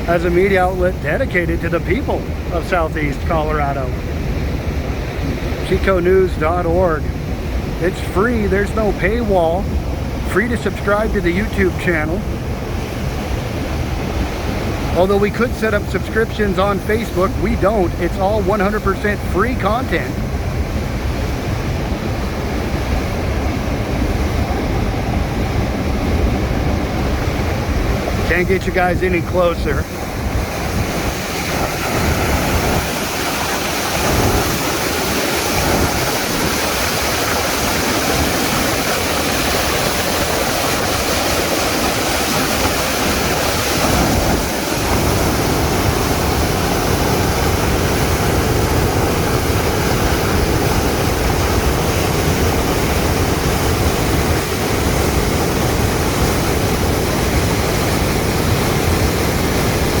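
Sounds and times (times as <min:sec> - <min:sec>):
river water rushing over spillway: 0:00.0 - 1:00.0.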